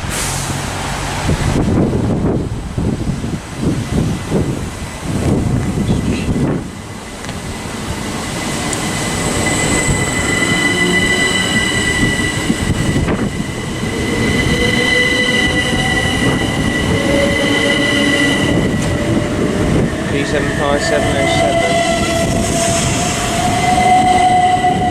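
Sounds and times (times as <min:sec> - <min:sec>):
train wheels rumbling on rails: 0:00.0 - 0:24.9
high-pitched squeal: 0:06.9 - 0:24.9.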